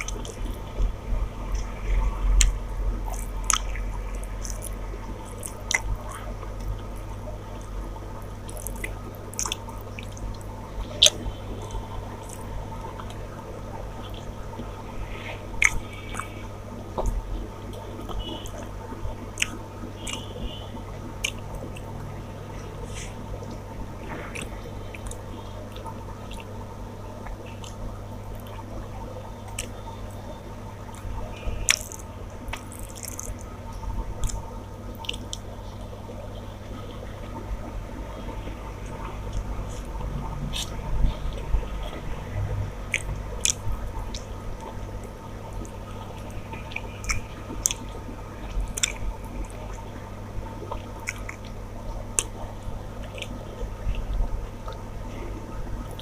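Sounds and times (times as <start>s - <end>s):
wet chewing and lip-smacking: 0.0s - 13.3s, 15.2s - 22.0s, 22.6s - 26.6s, 27.2s - 28.8s, 29.4s - 36.0s, 38.8s - 42.1s, 42.8s - 50.0s, 50.6s - 54.9s
steady low hum: 0.0s - 56.0s
sharp mouth clicks: 19.4s - 20.6s.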